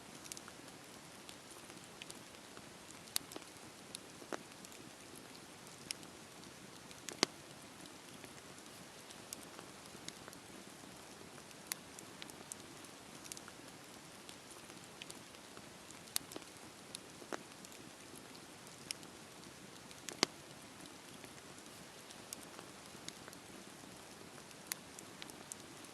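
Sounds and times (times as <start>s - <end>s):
burning wood popping and snapping: 3.0s - 6.1s, 6.8s - 7.4s, 15.9s - 23.6s.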